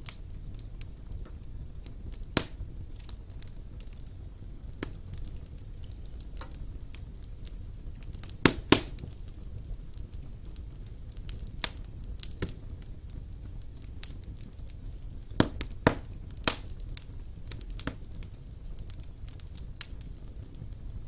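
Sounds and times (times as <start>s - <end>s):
low fire rumble: 0.0s - 21.0s
wood fire crackling and popping: 0.0s - 21.0s.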